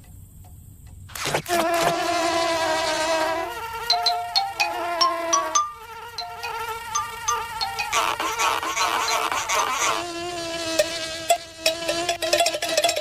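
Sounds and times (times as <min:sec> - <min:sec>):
cartoon insect buzzing: 0:01.1 - 0:12.9
high chirps: 0:03.9 - 0:09.4.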